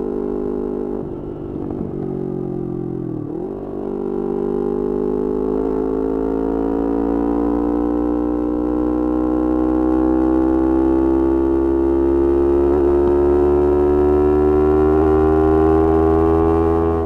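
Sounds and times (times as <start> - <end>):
motorcycle engine at high revs: 0.0 - 17.0.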